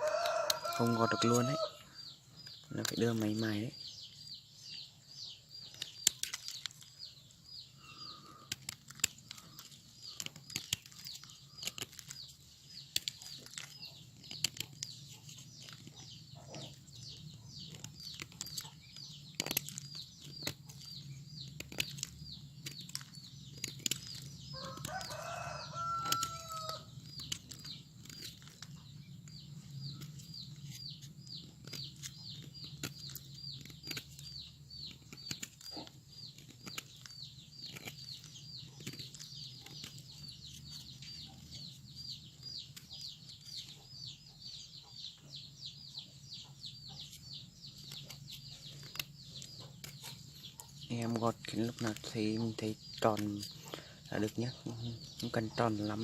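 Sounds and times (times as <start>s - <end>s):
knife scraping cement: 4.7s - 44.1s.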